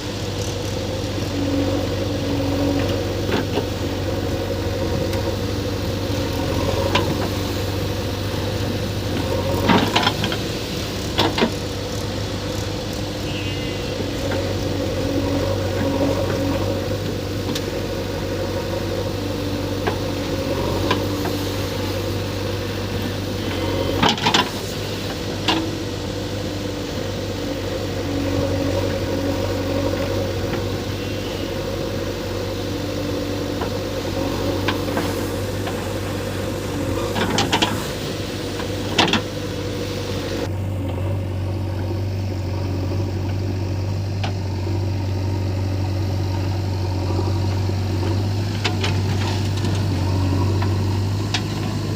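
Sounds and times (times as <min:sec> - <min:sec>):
diesel machinery engine running: 0:00.0 - 0:51.9.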